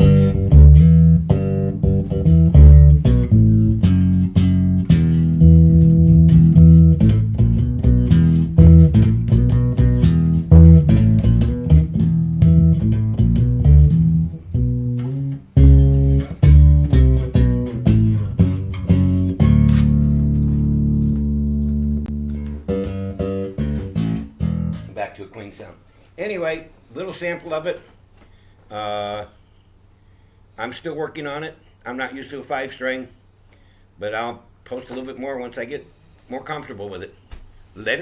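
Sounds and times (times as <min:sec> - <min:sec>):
distorted electric bass notes: 0:00.0 - 0:25.0.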